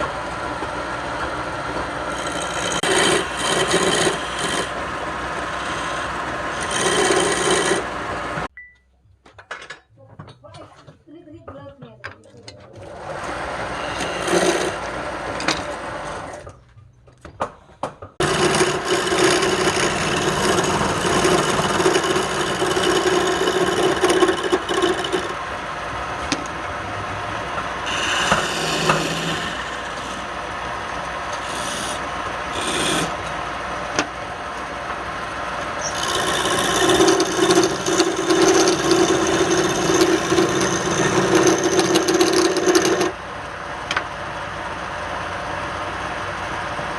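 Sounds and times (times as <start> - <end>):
lathe humming: 0.0 - 8.5, 12.9 - 16.5, 18.2 - 46.9
tool scraping spinning wood: 0.0 - 8.5, 12.6 - 16.6, 18.2 - 43.2.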